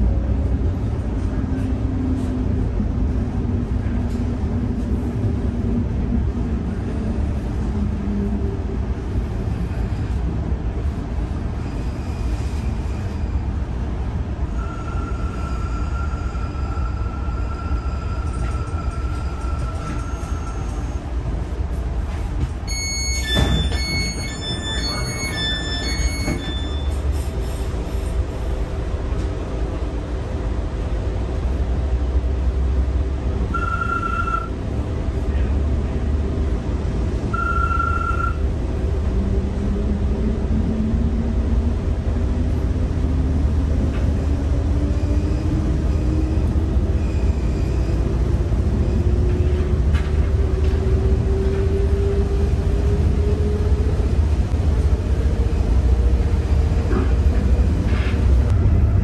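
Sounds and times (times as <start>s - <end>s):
train rumbling: 0.0s - 59.0s
short beeps: 22.7s - 27.0s, 33.6s - 34.5s, 37.3s - 38.4s.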